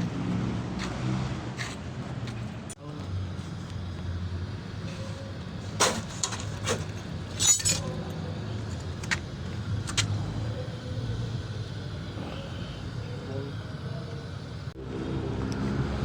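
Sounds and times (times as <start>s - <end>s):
steady low hum: 2.7s - 16.0s
metal tools clinking: 5.8s - 10.1s.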